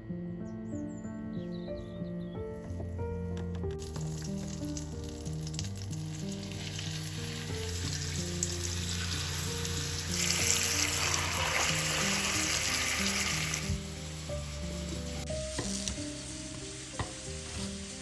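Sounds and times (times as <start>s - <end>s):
soft background music: 0.0s - 18.0s
food sizzling in oil: 3.8s - 18.0s.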